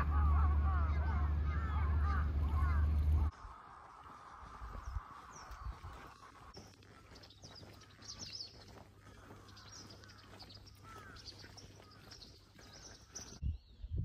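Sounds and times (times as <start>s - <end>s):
low steady hum: 0.0s - 3.6s
small birds chirping: 0.0s - 14.0s.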